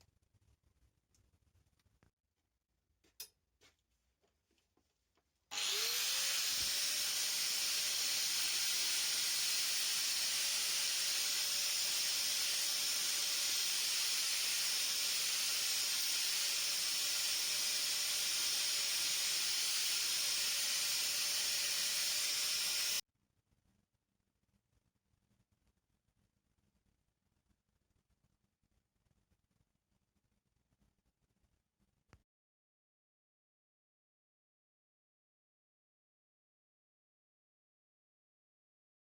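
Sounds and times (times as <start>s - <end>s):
electric power tool running: 5.5s - 23.0s.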